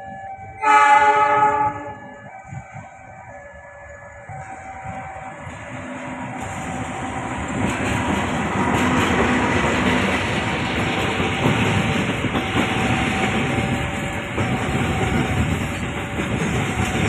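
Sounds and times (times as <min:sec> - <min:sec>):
train rumbling past: 0:00.0 - 0:17.0
wheels clattering over rails: 0:04.4 - 0:17.0.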